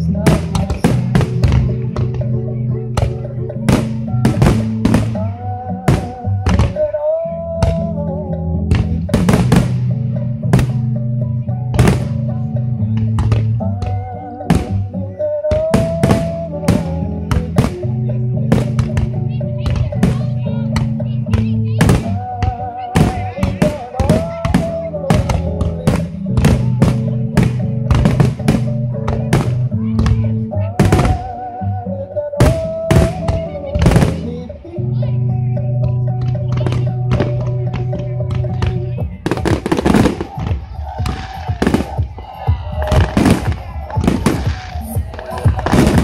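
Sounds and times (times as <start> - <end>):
music with wavering melody: 0.0 - 46.0
fireworks bursting: 3.7 - 5.2, 8.8 - 9.8, 23.0 - 31.3, 38.5 - 46.0.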